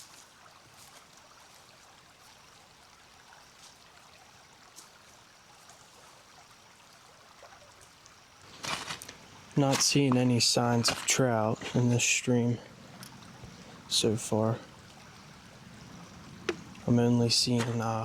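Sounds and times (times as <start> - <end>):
faint stream flowing: 0.0 - 18.0
light ticks: 13.0 - 13.3.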